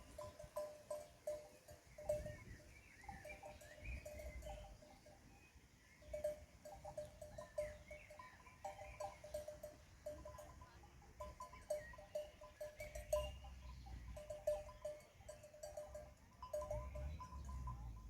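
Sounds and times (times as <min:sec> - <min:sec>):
livestock bells clinking: 0:00.0 - 0:18.0.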